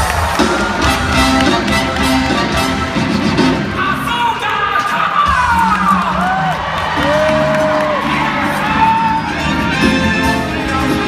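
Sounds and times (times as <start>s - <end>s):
crowd cheering and whooping: 0.0s - 2.9s, 4.8s - 10.7s
circus band music: 0.0s - 11.0s.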